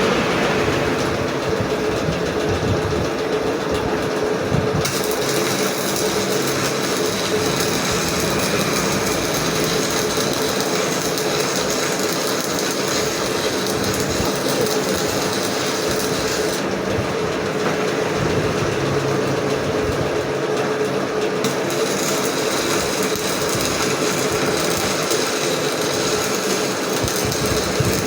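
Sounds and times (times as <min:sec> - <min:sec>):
arc welding crackling hiss: 0:04.8 - 0:16.8, 0:21.4 - 0:28.0.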